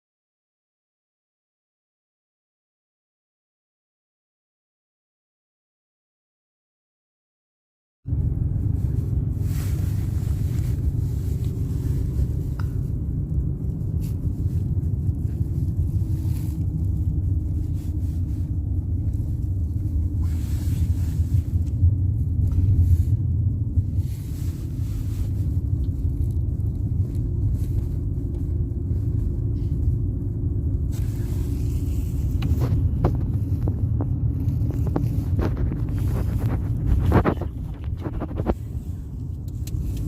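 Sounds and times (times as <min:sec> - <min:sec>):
road noise: 0:08.0 - 0:40.0
car engine rumble: 0:08.1 - 0:40.0.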